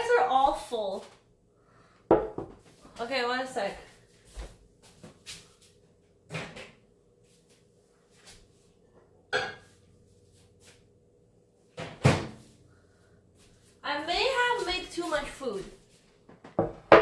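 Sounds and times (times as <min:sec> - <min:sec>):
kitchen knocks and clunks: 0:02.1 - 0:02.7, 0:06.2 - 0:06.8, 0:09.3 - 0:09.8, 0:11.8 - 0:12.4, 0:16.3 - 0:17.0.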